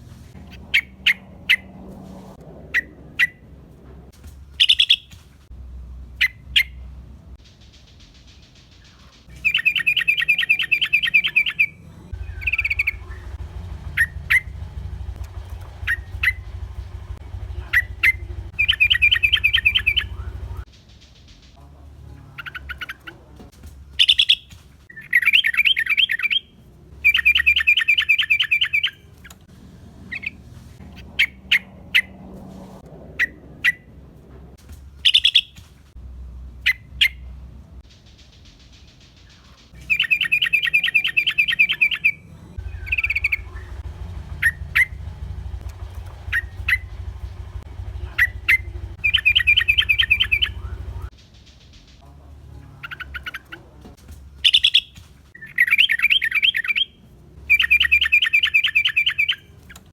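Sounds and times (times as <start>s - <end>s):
bird chattering calls: 4.6s - 5.1s, 8.3s - 20.6s, 24.0s - 26.4s, 35.0s - 35.6s, 38.2s - 51.1s, 54.4s - 56.9s, 57.5s - 59.8s
low hum: 11.5s - 23.3s, 41.3s - 54.4s.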